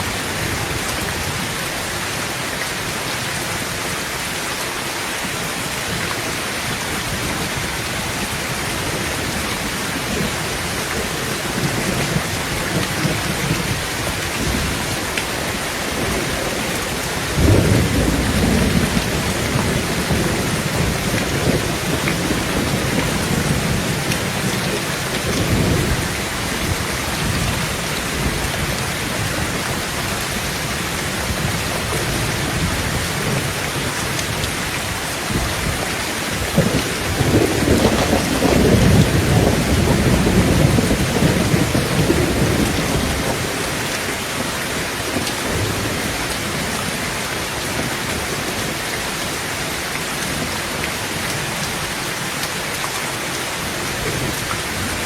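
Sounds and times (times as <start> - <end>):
heavy rain on tin roof: 0.0 - 55.0
thunder clap and rumble: 8.6 - 44.2.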